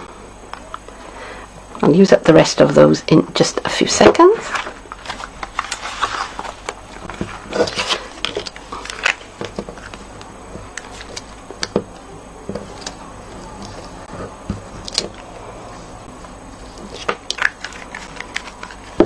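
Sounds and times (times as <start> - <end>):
paper pieces rustling: 4.4 - 10.0.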